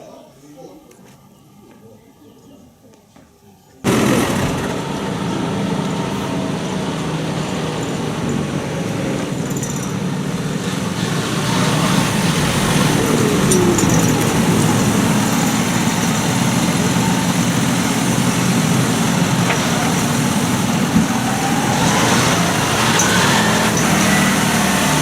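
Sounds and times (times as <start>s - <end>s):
tractor engine running: 3.9s - 25.0s.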